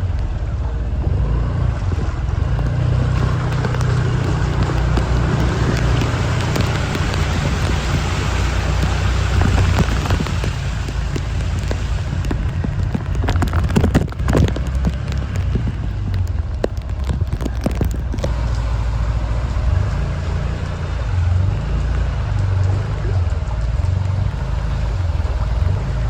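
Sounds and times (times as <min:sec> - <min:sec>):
vehicle engine rumbling: 0:00.0 - 0:26.0
sharp clicks and knocks: 0:01.8 - 0:18.7.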